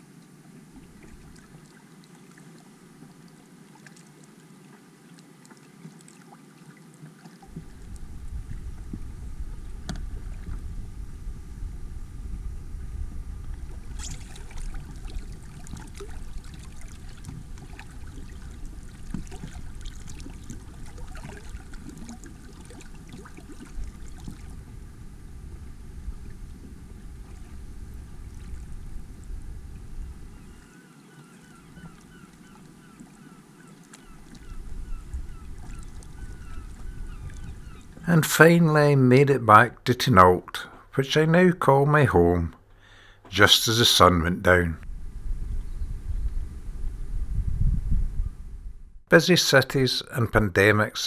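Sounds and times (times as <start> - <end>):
water lapping against hull: 0.4 - 11.5, 13.3 - 38.0
wind rumble on microphone: 7.5 - 30.6, 34.3 - 38.0, 44.8 - 49.1
small splashes: 14.0 - 24.5.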